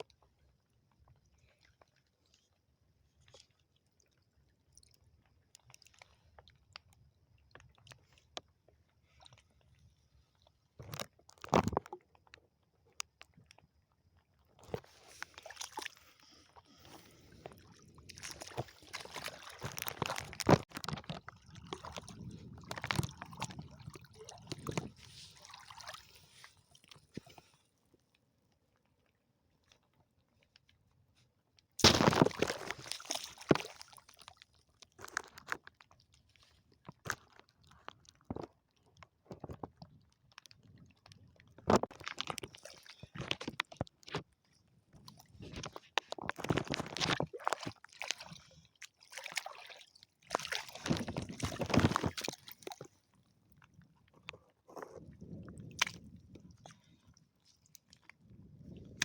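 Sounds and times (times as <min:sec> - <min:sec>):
shallow water sloshing: 0:13.1 - 0:28.1, 0:31.8 - 0:59.0
crunching and scraping: 0:14.6 - 0:23.5, 0:31.8 - 0:33.6, 0:45.3 - 0:47.8, 0:50.3 - 0:53.0.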